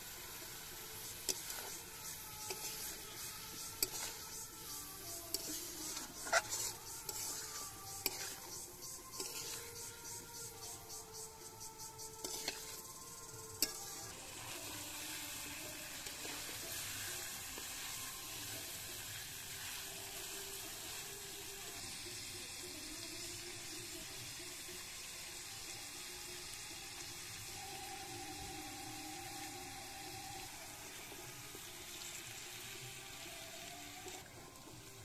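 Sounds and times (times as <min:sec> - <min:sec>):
food sizzling in hot oil: 0:00.0 - 0:35.0
rhythmic scraping: 0:00.4 - 0:14.4.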